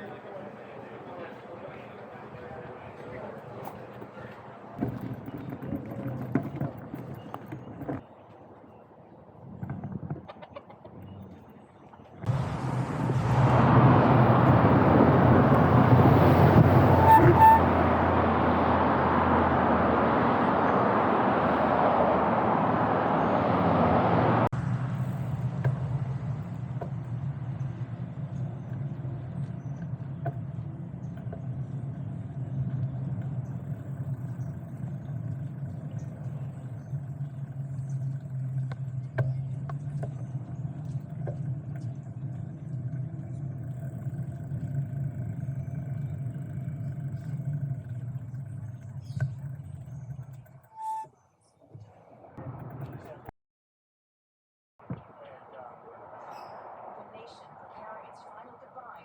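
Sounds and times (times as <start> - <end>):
road traffic noise: 0.0 - 53.3, 54.8 - 59.0
low rumble: 12.2 - 50.5.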